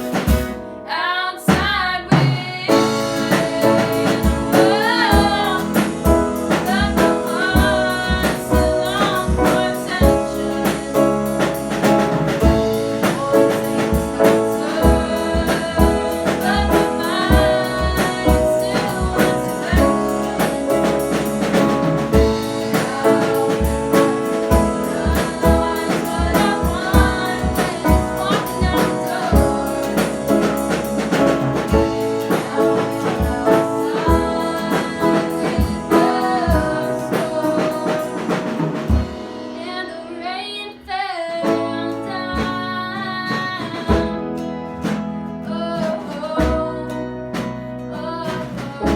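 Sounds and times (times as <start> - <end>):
band playing a song: 0.0 - 40.0
voices singing: 0.0 - 44.1
low drum beat: 2.2 - 39.3.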